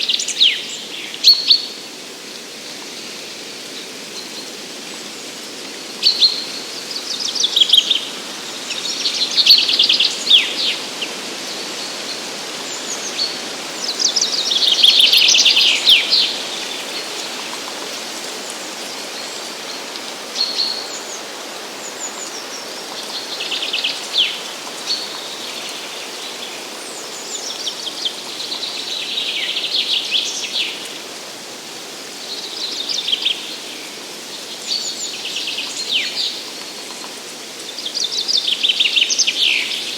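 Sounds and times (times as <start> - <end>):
steady background hiss: 0.0 - 39.9
songbirds trilling: 3.0 - 31.1.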